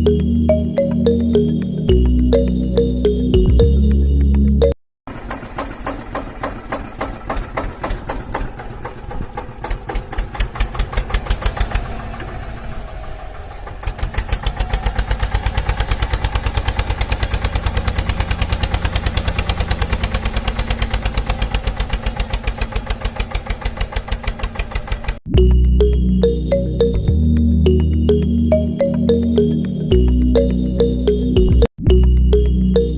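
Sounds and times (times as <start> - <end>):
small engine chugging: 5.1 - 25.2.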